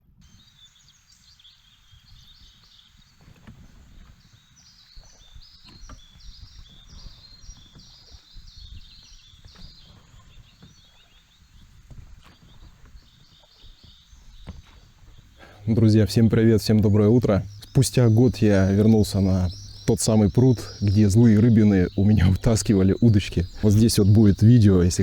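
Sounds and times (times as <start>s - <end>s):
bird singing high notes: 15.5s - 25.0s.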